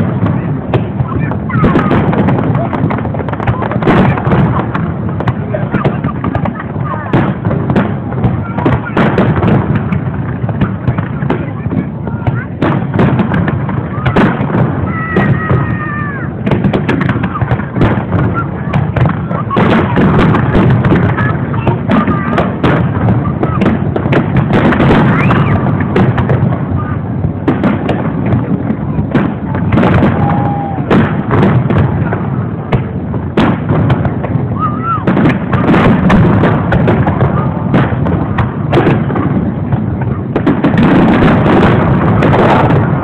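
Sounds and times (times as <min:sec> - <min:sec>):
fireworks bangs and crackles: 0:00.0 - 0:43.0.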